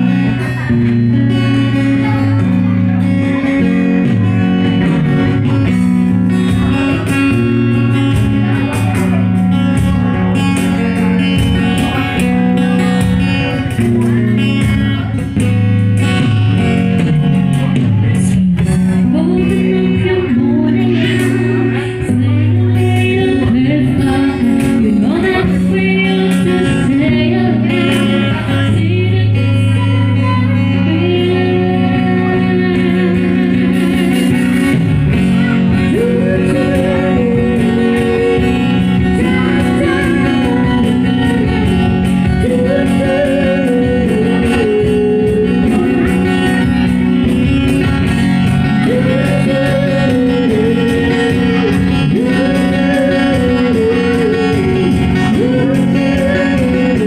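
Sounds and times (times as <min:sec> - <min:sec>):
guitar: 0:00.0 - 0:57.0
low accompaniment: 0:00.0 - 0:57.0
person singing: 0:16.0 - 0:57.0.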